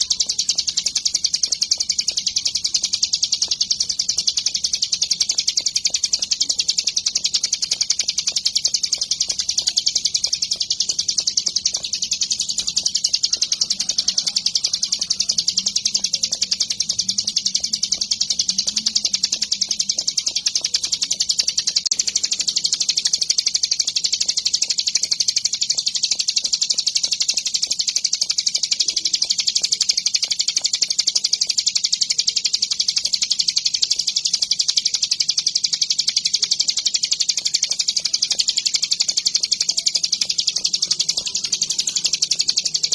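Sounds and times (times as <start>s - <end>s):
bird singing in fast chirps: 0.0s - 42.9s.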